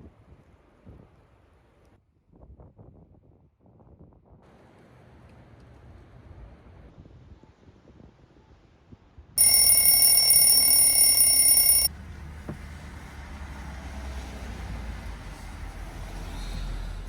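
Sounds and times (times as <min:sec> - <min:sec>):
electronic alarm tone ringing: 0:09.4 - 0:11.9.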